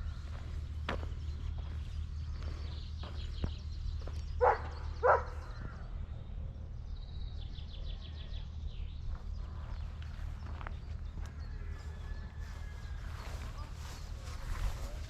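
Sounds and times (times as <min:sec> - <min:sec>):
light footsteps: 0:00.0 - 0:05.4, 0:09.0 - 0:15.0.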